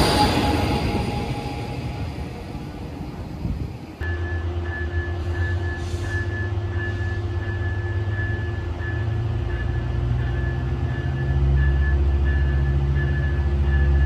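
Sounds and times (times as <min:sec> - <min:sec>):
diesel locomotive droning: 0:00.0 - 0:14.0
pulsing high ringing tone: 0:04.0 - 0:14.0.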